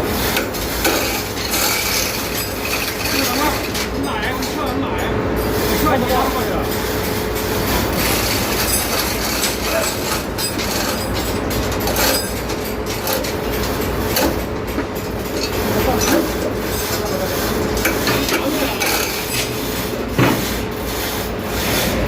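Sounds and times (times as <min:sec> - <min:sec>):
steady machinery noise: 0:00.0 - 0:22.0
metallic clanks and rattles: 0:06.7 - 0:20.5.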